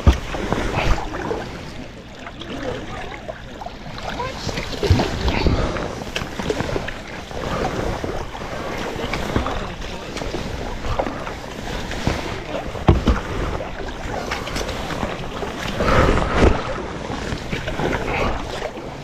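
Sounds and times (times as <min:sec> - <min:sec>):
paddle knocking on hull: 0:00.0 - 0:01.2, 0:03.9 - 0:18.3
kayak paddle strokes: 0:00.0 - 0:19.0
water splashing against kayak: 0:00.0 - 0:19.0
wind rumbling on microphone: 0:04.1 - 0:19.0.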